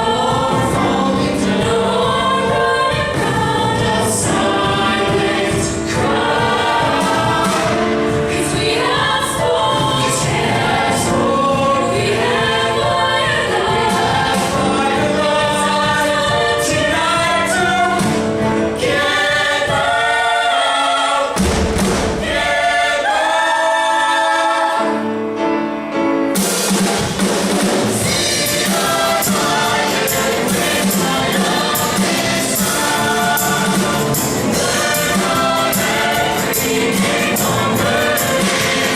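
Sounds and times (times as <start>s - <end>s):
vocal group singing in harmony: 0.0s - 25.5s, 27.9s - 38.9s
instrumental accompaniment: 0.0s - 38.9s.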